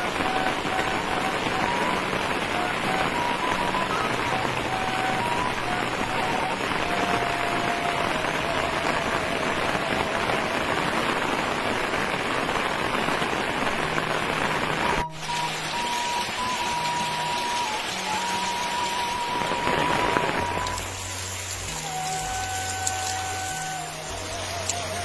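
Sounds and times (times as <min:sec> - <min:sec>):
flute melody: 0:00.0 - 0:25.0
rain pattering: 0:00.0 - 0:25.0.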